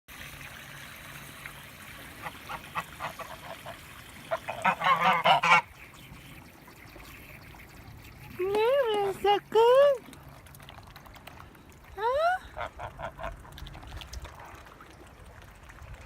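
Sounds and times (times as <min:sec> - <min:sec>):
geese honking: 0:02.2 - 0:06.3.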